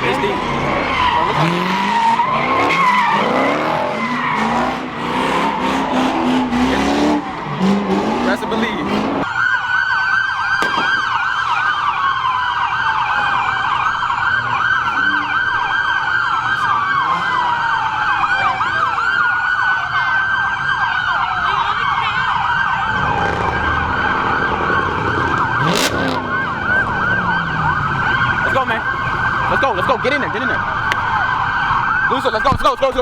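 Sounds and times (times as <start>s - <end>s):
police sirens wailing: 0.0s - 33.0s
sharp bang: 10.6s - 11.2s.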